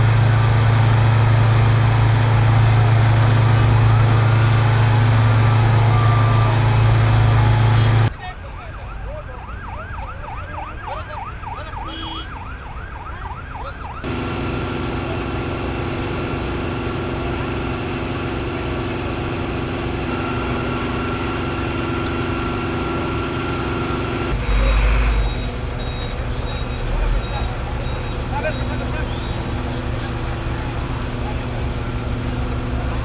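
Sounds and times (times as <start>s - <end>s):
engine-like drone: 0.0s - 8.1s, 14.0s - 33.0s
siren yelping: 8.6s - 14.1s.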